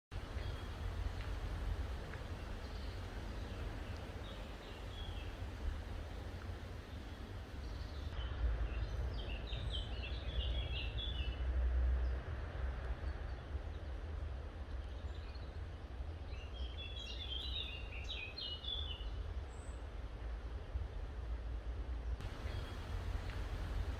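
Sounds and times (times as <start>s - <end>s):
songbird chirping: 0.2s - 11.4s, 16.2s - 19.8s, 22.2s - 23.9s
low rumble: 22.2s - 23.9s.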